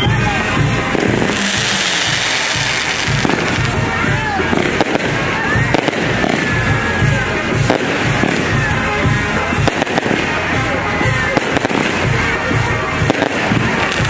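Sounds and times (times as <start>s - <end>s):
firework whistles: 0.0s - 6.9s
fireworks crackling and popping: 0.0s - 14.0s
music with steady beat: 0.0s - 14.0s.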